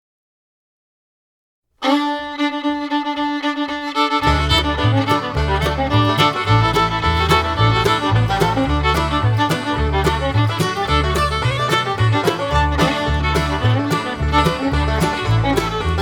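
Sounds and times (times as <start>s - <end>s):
music melody: 1.8s - 16.0s
bass line with steady beat: 4.2s - 16.0s.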